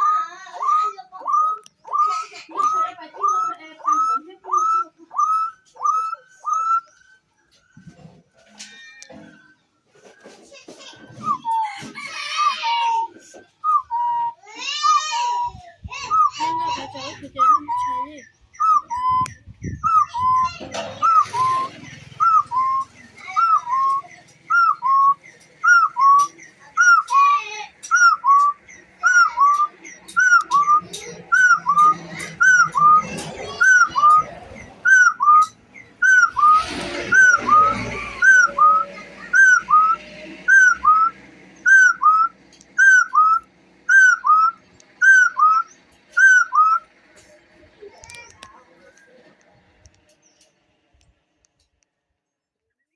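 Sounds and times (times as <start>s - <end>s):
partridge calling: 0.0s - 7.8s, 14.7s - 49.2s.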